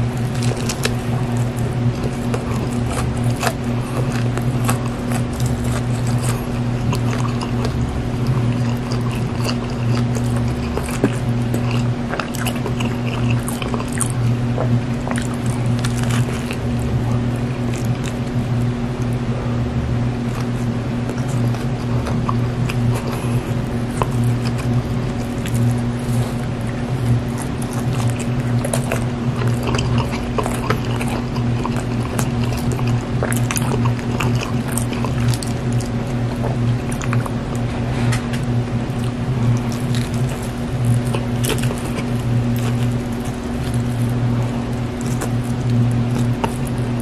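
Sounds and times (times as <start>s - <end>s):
chewing soft sandwich: 0.0s - 47.0s
steady low hum: 0.0s - 47.0s.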